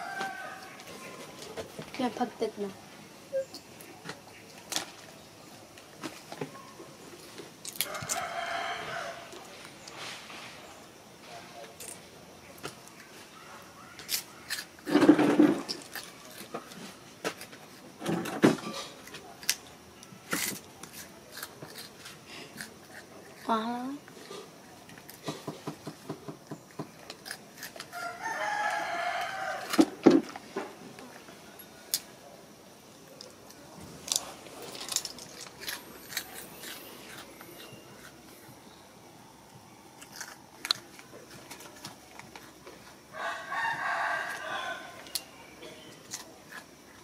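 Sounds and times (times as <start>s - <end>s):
rooster crowing: 0.0s - 1.4s, 7.8s - 9.4s, 27.9s - 30.0s, 43.1s - 45.4s.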